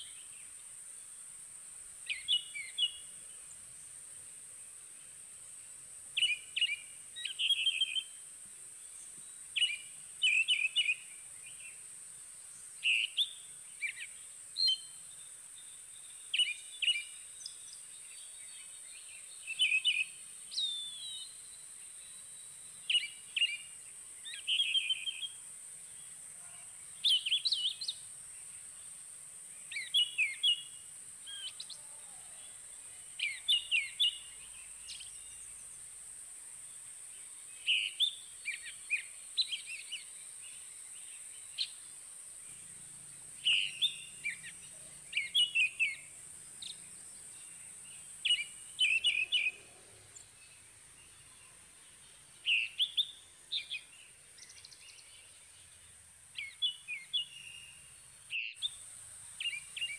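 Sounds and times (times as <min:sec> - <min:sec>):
steady high-pitched hiss: 0:00.0 - 0:59.9
songbird whistling song: 0:02.0 - 0:03.2, 0:06.2 - 0:08.2, 0:09.1 - 0:11.8, 0:12.8 - 0:25.4, 0:26.8 - 0:28.1, 0:29.6 - 0:35.6, 0:37.5 - 0:41.8, 0:43.4 - 0:55.4, 0:56.3 - 0:58.8, 0:59.4 - 0:59.9.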